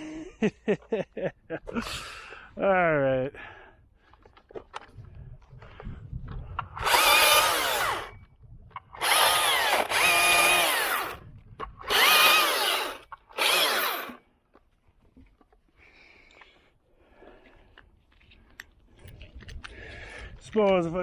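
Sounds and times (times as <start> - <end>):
chainsaw revving in bursts: 6.8 - 8.1, 9.0 - 11.2, 11.8 - 14.2.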